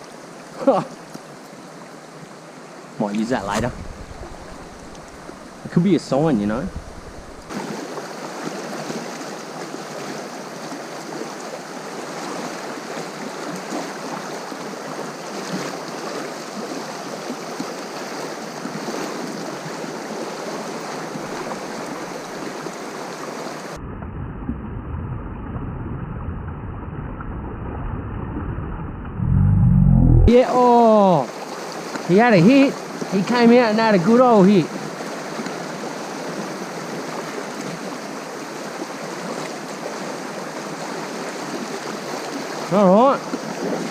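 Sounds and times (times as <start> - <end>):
river water rushing: 0.0 - 23.8, 30.3 - 43.9
muffled rumble: 3.4 - 7.5, 27.8 - 30.3.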